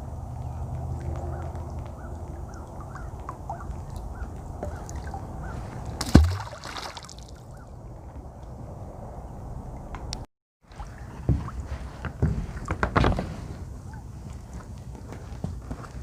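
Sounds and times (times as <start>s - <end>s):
heavy object splashing into water: 6.0s - 7.4s.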